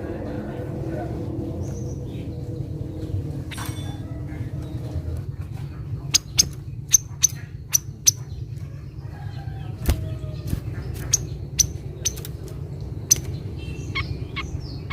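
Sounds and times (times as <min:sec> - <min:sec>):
low hum: 0:00.0 - 0:08.7
bird chip calls: 0:06.0 - 0:14.9.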